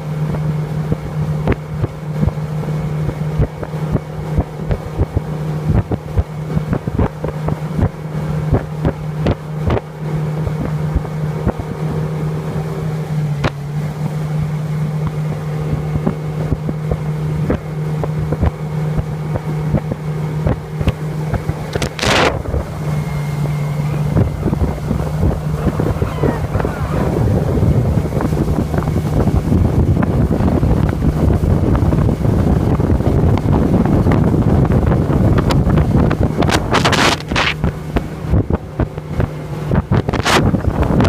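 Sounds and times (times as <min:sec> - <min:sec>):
motorboat engine running: 0:00.0 - 0:41.0
wind on microphone: 0:15.0 - 0:41.0
loud rushing burst: 0:23.7 - 0:29.2.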